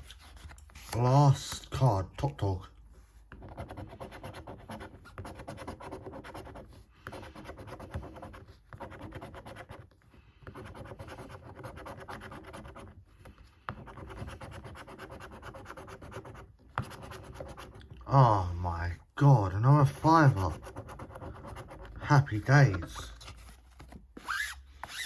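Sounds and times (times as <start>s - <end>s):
scratchcard being scratched: 20.2s - 23.2s, 24.2s - 25.0s.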